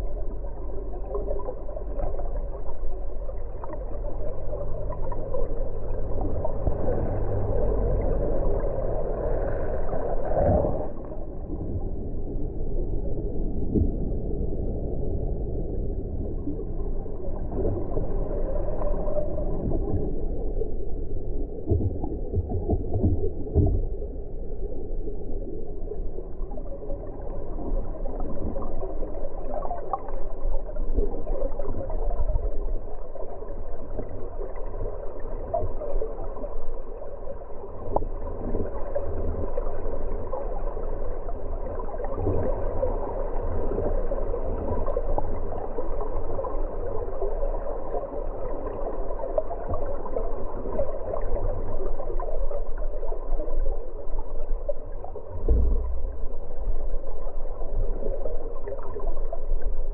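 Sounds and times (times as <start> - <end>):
floodwater rushing and gurgling: 3.5 - 11.7.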